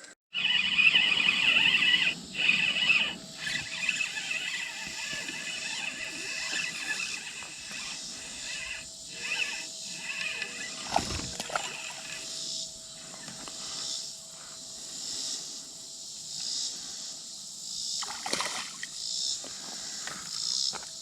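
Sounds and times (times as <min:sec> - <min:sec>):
high-pitched animal calling: 0:00.3 - 0:12.4.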